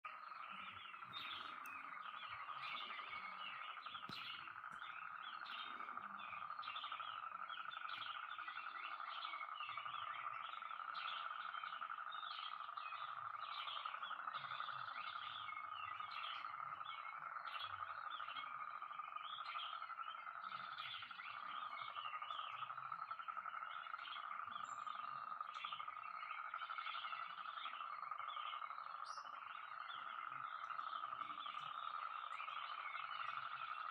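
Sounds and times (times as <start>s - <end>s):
chorus of frogs calling: 0.0s - 33.9s.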